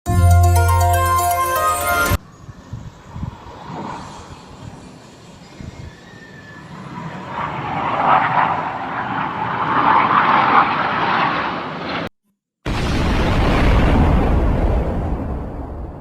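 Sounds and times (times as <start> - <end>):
jet aircraft passing: 2.3 - 12.2.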